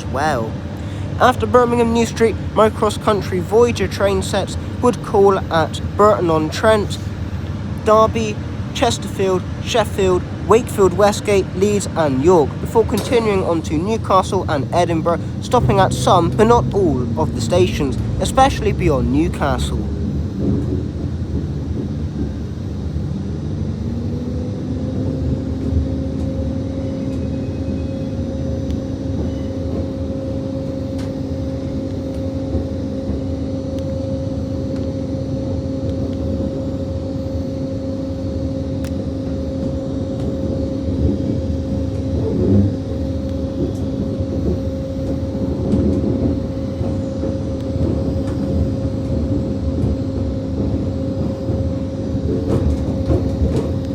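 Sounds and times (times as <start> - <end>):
diesel train engine: 0.0 - 53.9
train running rumble: 0.0 - 53.9
train bumps: 43.5 - 53.9.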